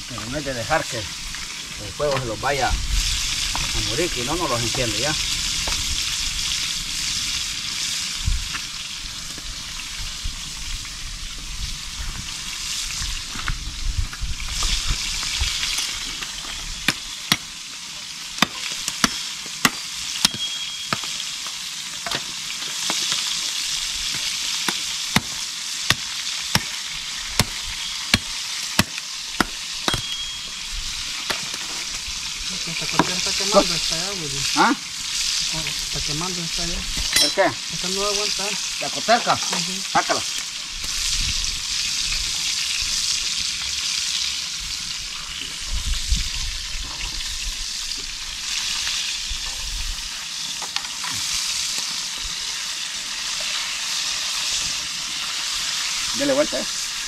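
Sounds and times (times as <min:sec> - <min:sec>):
meat sizzling in hot oil: 0:00.0 - 0:57.0.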